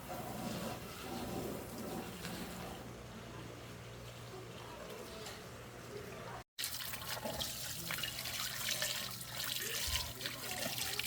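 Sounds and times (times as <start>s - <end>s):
water running and splashing: 6.6s - 11.0s.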